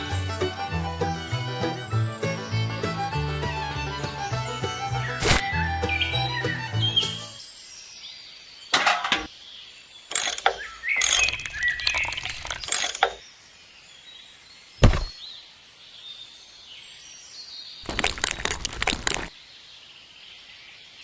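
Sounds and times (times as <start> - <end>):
heavy thud: 14.8 - 15.1.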